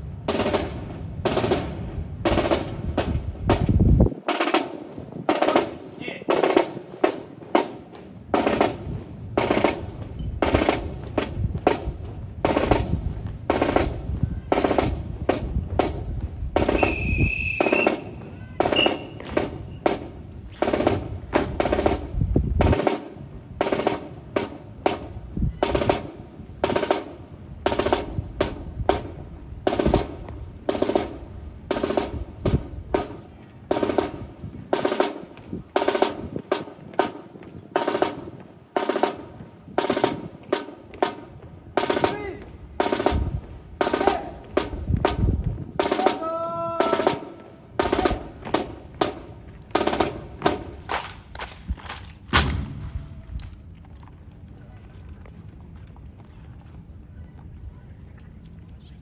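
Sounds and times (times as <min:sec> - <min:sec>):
boots stamping in unison: 0:34.8 - 0:54.4
rifles slapped and struck: 0:50.5 - 0:53.6.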